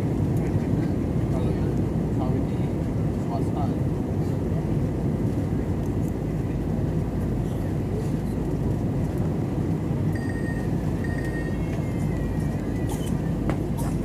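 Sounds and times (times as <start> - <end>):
airliner engines rumbling: 0.0 - 14.0
faint thin high tone: 10.2 - 11.7.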